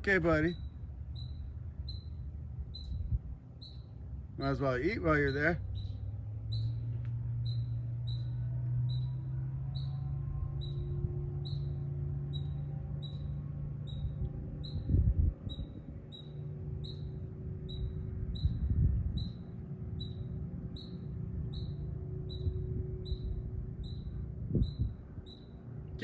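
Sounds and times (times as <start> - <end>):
low microphone rumble: 0.0 - 26.0
small animal chirping: 0.5 - 4.0, 5.3 - 9.1, 17.7 - 25.5.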